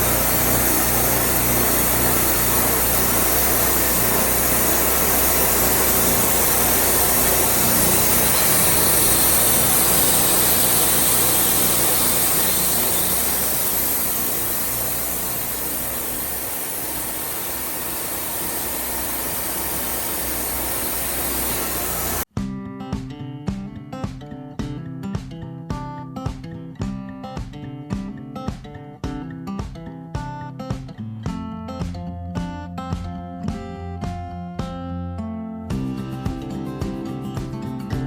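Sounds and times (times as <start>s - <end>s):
band saw hissing: 0.0s - 22.3s
sawmill engine humming: 0.0s - 22.3s.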